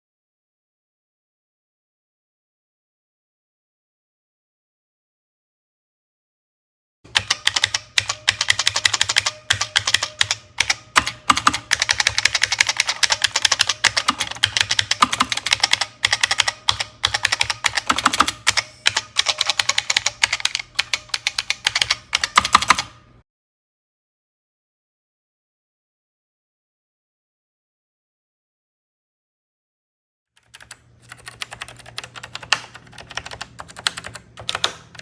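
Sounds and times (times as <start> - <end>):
fast typing on keyboard: 7.1 - 23.0, 30.4 - 35.0.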